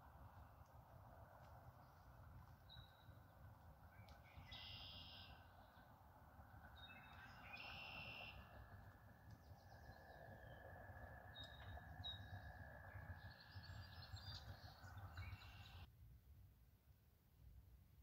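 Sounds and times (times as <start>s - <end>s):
birds chirping: 1.6s - 15.9s
low rumble: 5.2s - 15.9s.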